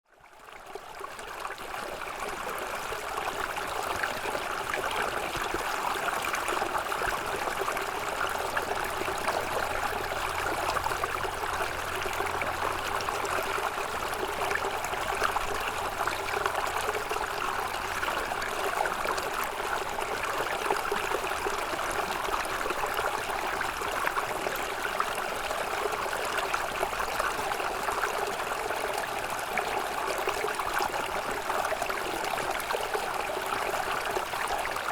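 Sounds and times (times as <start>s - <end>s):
stream flowing water: 0.1s - 34.9s.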